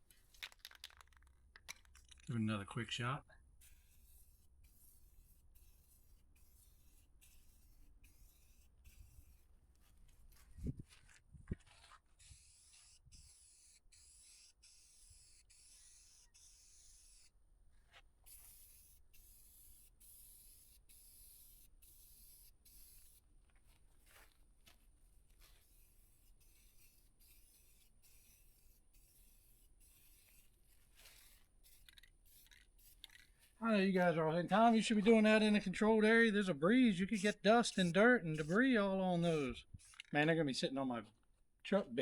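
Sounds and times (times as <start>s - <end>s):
aerosol spray can hissing: 3.6s - 9.9s, 12.2s - 17.4s, 18.2s - 23.3s, 25.4s - 33.6s, 37.1s - 40.2s.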